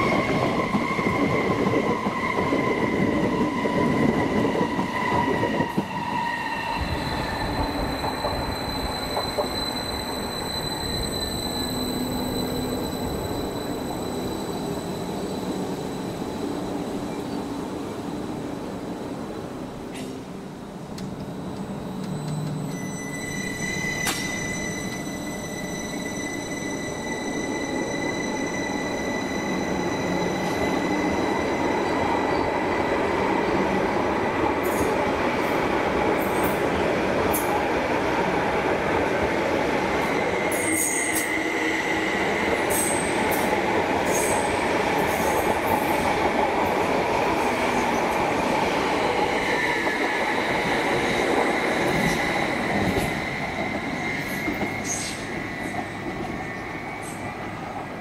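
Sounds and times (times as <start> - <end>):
wheels rumbling on rail: 0.0 - 58.0
high wheel squeals: 2.4 - 16.9, 21.4 - 32.5.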